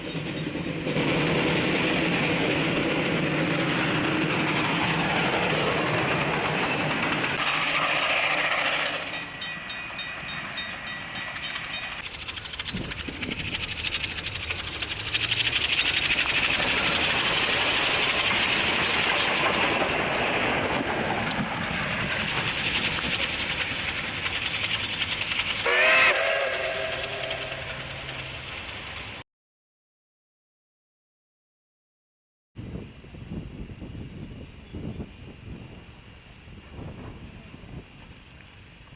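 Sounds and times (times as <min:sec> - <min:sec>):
steam train rumble: 0:00.0 - 0:29.2, 0:32.6 - 0:38.9
rail clatter: 0:00.2 - 0:29.2
steam whistle blast: 0:25.6 - 0:27.5.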